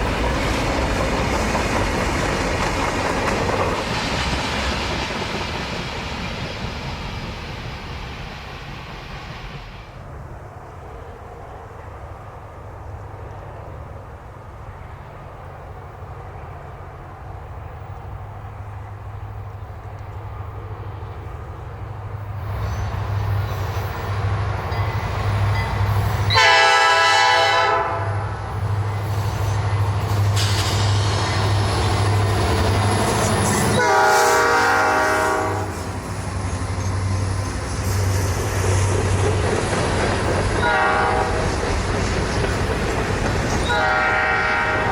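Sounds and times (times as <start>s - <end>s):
locomotive engine rumble: 0.0s - 44.9s
locomotive air horn blasts: 26.2s - 28.3s, 33.7s - 35.9s, 40.6s - 41.4s, 43.6s - 44.9s.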